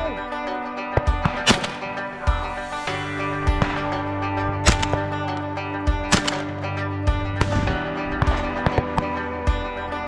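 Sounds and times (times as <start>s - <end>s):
music with held notes: 0.0s - 10.0s
sharp cracks: 1.2s - 2.8s, 3.4s - 9.2s.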